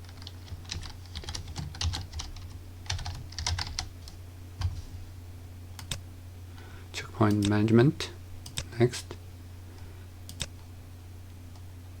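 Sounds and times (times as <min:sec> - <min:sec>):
typing on computer keyboard: 0:00.0 - 0:03.9
steady low hum: 0:00.0 - 0:12.0.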